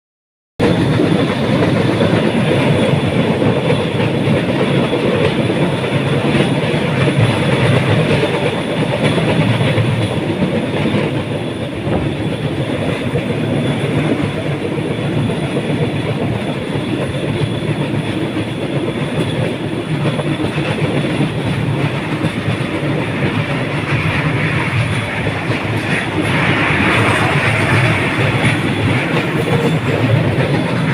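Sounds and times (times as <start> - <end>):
train wheels running on track: 0.6 - 30.9.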